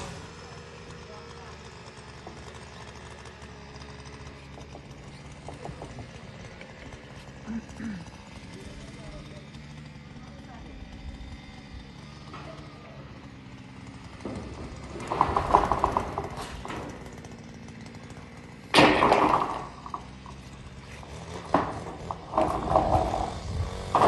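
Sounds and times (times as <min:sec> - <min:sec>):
rattling and banging metal sheets: 0:14.2 - 0:17.4, 0:18.7 - 0:24.0.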